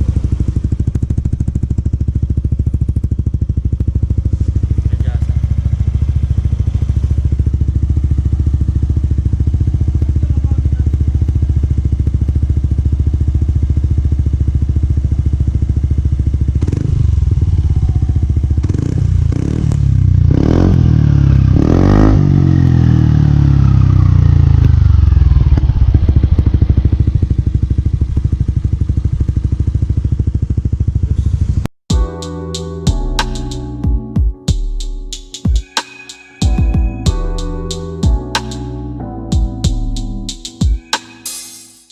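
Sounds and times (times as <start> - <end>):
scooter engine idling: 0.0 - 34.0
throttle blips: 31.9 - 41.5.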